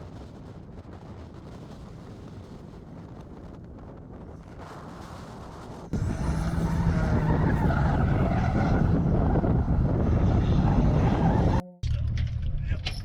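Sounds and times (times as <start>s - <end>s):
faint wind noise: 0.0s - 11.6s
car engine idling: 6.0s - 11.6s.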